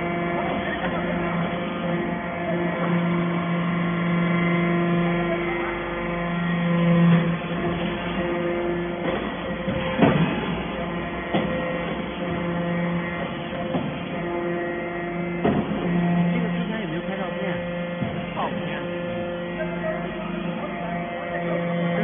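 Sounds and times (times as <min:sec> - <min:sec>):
baler machine hum: 0:00.0 - 0:22.0
sharp knocks: 0:09.0 - 0:10.6, 0:15.4 - 0:16.2.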